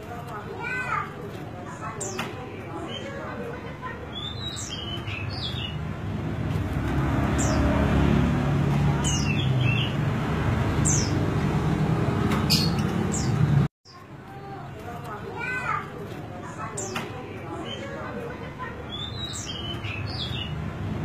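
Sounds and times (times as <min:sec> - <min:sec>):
bird twittering: 0:12.4 - 0:13.5.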